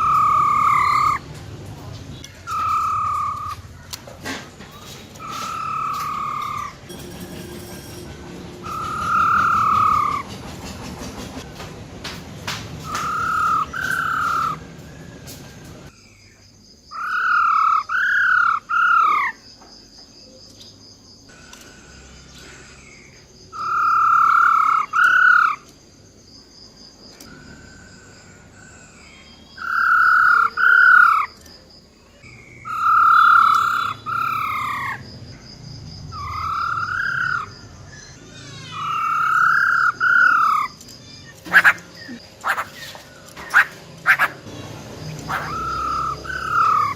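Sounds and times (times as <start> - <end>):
laughingthrush rolling calls: 0.0 - 1.3, 2.4 - 3.9, 5.2 - 6.9, 8.6 - 11.4, 12.8 - 14.7, 16.9 - 19.4, 23.5 - 25.6, 29.6 - 31.4, 32.6 - 35.0, 36.1 - 46.9.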